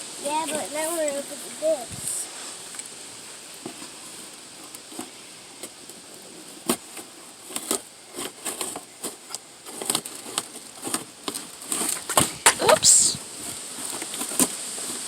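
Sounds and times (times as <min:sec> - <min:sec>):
packaging clicks and rustles: 0:03.7 - 0:12.6.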